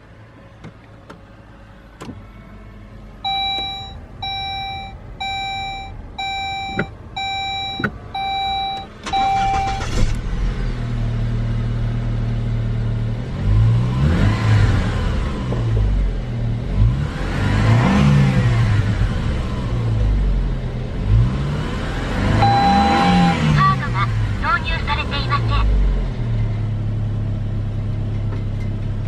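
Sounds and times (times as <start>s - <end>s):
car engine starting and idling: 0.0s - 29.0s
car warning chime beeping: 3.2s - 10.1s, 22.4s - 25.5s
engine revving: 9.0s - 26.6s.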